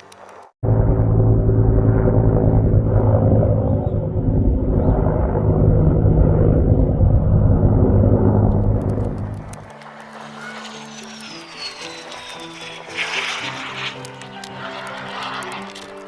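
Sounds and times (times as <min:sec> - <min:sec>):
engine running steadily: 0:00.6 - 0:10.1.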